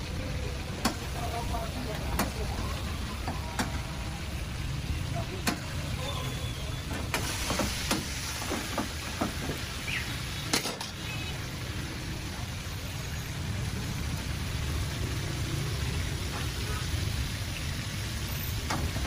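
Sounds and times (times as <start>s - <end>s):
chicken sizzling in oil: 0.0s - 19.0s
low rumble of gas flames: 0.0s - 19.0s
metal utensils clanking on woks: 10.4s - 11.1s.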